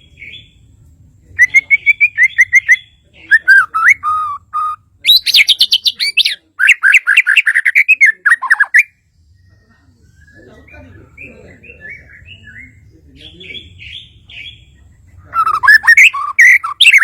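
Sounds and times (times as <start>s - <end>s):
songbird whistling loudly: 15.4s - 17.0s.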